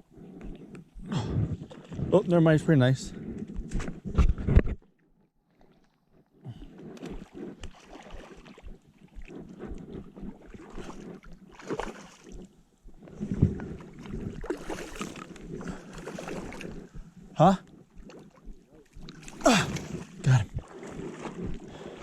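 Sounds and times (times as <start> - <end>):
water splashing: 7.0 - 22.0.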